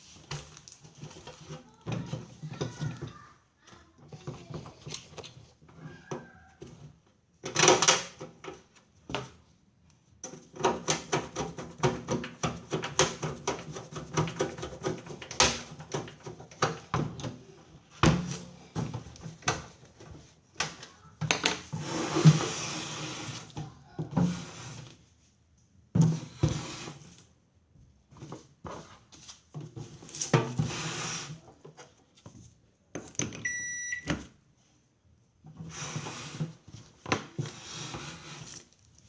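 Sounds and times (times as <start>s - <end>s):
microwave beep: 33.4s - 34.2s.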